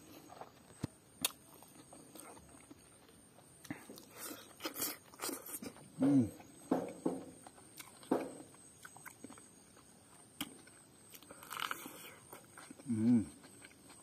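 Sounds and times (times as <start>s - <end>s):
man chewing and smacking: 0.0s - 14.0s
man humming mm: 6.0s - 6.4s, 12.8s - 13.4s.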